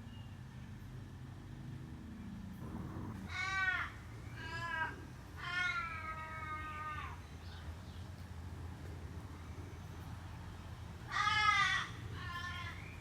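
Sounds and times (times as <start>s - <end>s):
animal wailing call: 2.6s - 3.8s
steady low hum: 2.6s - 4.1s.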